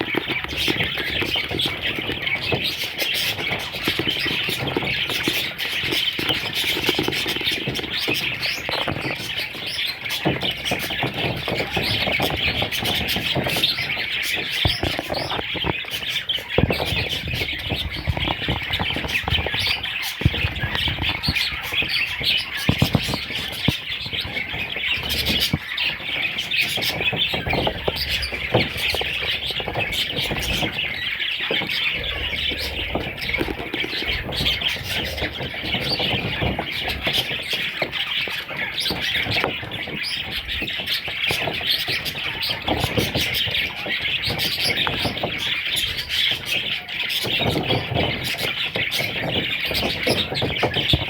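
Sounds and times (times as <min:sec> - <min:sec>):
budgerigars chirping: 0:00.0 - 0:51.0.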